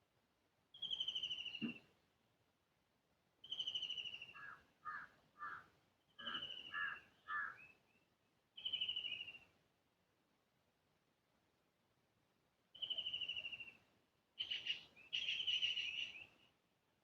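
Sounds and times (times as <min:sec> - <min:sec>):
bird trills: 0:06.2 - 0:07.8, 0:14.4 - 0:16.4.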